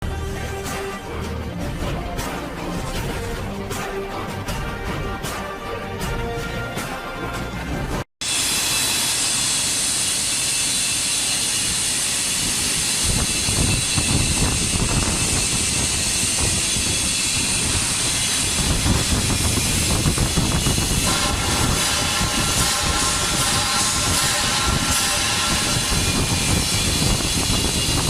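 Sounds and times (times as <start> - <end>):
welding arc hissing and crackling: 8.2 - 28.0.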